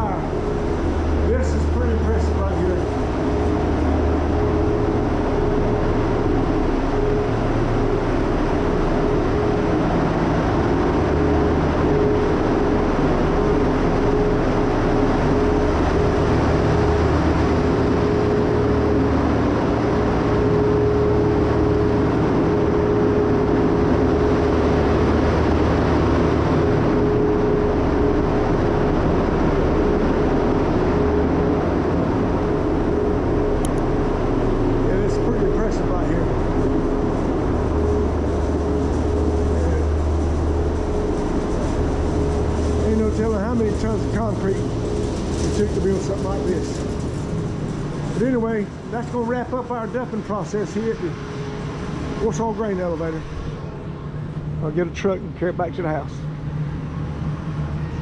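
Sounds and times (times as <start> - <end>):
conveyor machinery rumbling: 0.0 - 58.0.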